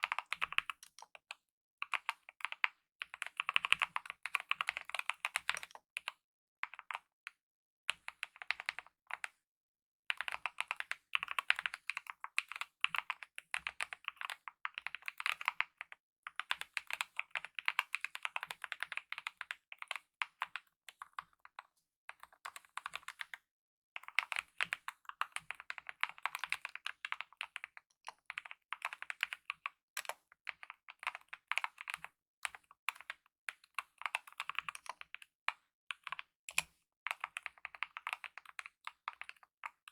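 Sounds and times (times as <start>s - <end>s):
mechanical keyboard typing: 0.0s - 1.0s, 1.9s - 6.1s, 10.2s - 20.6s, 24.0s - 33.2s, 33.8s - 35.2s, 36.0s - 39.8s.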